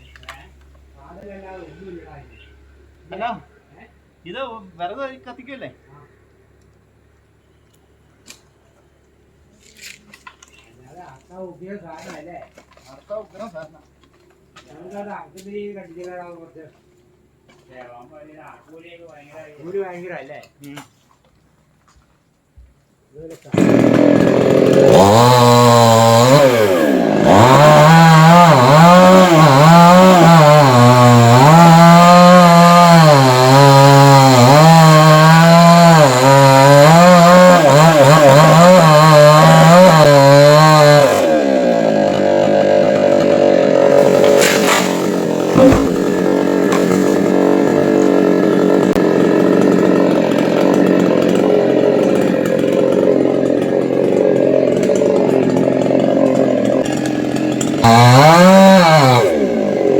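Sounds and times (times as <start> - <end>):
chainsaw cutting through trunk: 23.5 - 59.9
sharp knock: 45.5 - 46.2.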